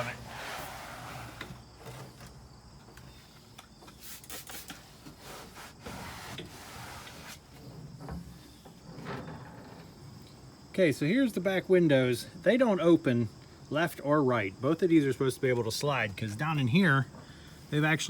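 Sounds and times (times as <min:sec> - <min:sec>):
cloth scrubbing a surface: 0:00.0 - 0:01.4, 0:04.1 - 0:07.4.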